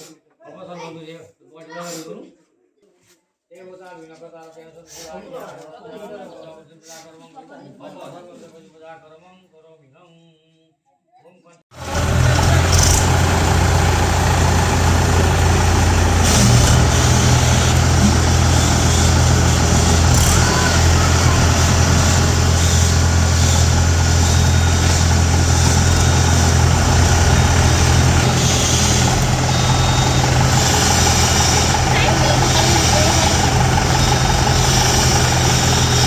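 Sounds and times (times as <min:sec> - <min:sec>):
tractor diesel engine running: 0:11.8 - 0:36.0.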